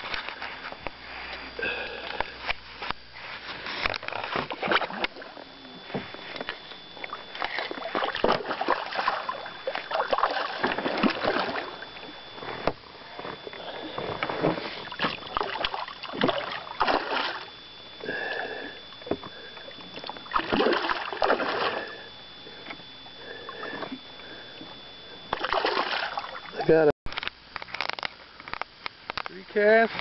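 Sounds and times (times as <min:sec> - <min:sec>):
faint steady high tone: 0:03.8 - 0:26.9
water splashing: 0:07.0 - 0:22.1, 0:25.3 - 0:26.8.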